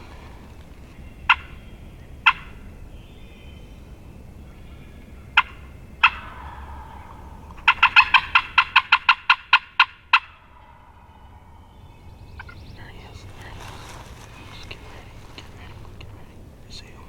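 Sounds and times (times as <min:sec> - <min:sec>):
turkey yelping: 0:00.0 - 0:02.9, 0:03.5 - 0:12.9.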